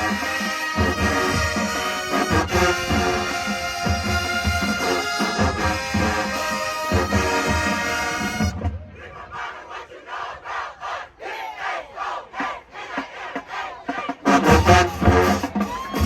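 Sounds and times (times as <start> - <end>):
steady drum beat: 0.0 - 8.8, 12.0 - 16.0
marching band brass: 0.0 - 16.0.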